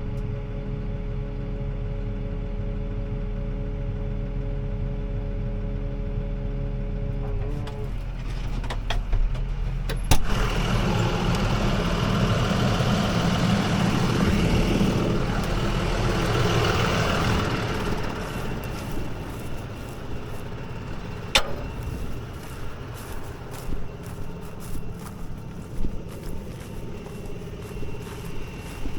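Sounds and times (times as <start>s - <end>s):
tractor engine running: 0.0s - 28.9s
sharp clicks: 21.3s - 22.0s.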